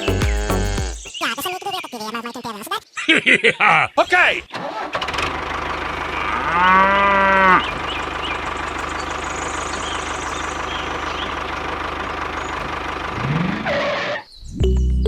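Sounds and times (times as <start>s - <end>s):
tractor engine idling: 4.6s - 14.0s
cow mooing: 5.9s - 8.0s.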